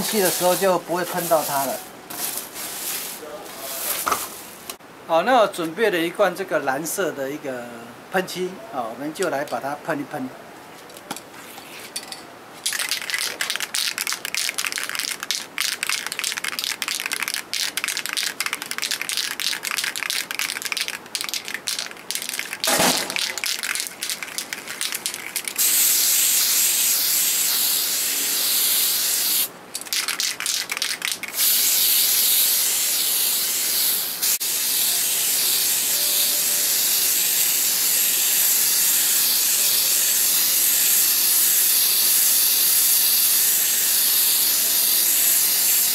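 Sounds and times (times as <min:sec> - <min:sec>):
spray can hissing: 0:00.0 - 0:03.1, 0:12.8 - 0:45.9.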